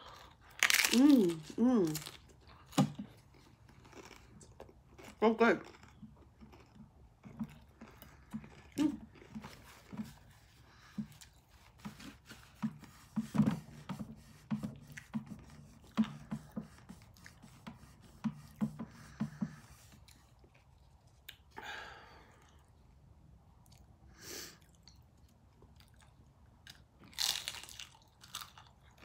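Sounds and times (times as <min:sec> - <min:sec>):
chewing crunchy food: 0:00.0 - 0:12.6, 0:24.6 - 0:29.0.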